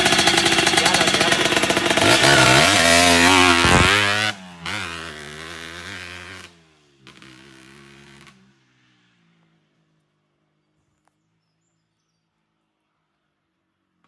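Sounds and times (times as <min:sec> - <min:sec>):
motorcycle engine revving: 0:00.0 - 0:09.0.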